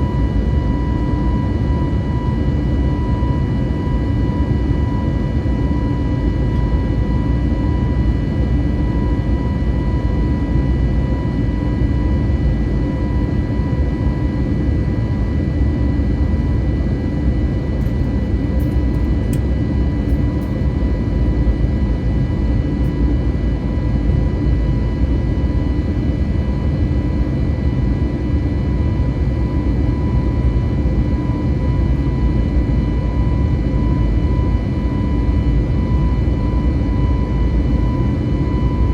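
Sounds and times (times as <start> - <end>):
aircraft cabin engine and airflow roar: 0.0 - 38.9
faint steady whine: 27.9 - 38.9.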